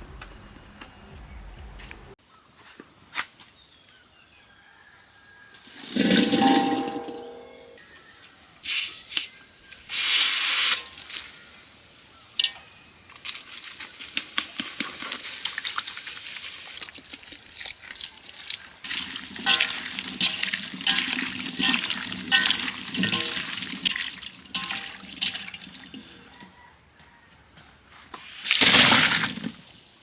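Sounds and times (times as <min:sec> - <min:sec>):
water dripping and splashing: 0:10.8 - 0:11.4, 0:12.3 - 0:26.4, 0:28.2 - 0:30.0
water gushing: 0:13.3 - 0:26.4, 0:28.2 - 0:30.0.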